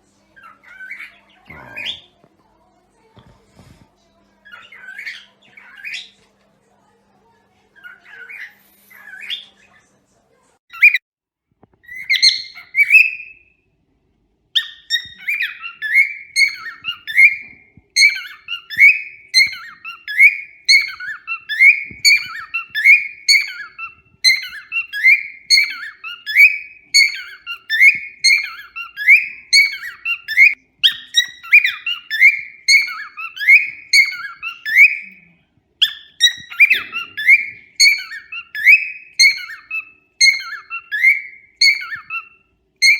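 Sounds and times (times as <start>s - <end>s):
cockatiel chirping and whistling: 4.5s - 6.2s, 7.8s - 9.6s, 10.7s - 11.0s, 11.8s - 13.5s, 14.6s - 35.2s, 35.8s - 42.9s.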